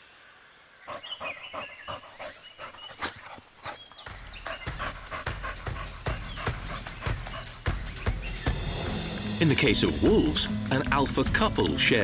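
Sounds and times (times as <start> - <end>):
animal breathy sharp calls: 0.9 - 8.6.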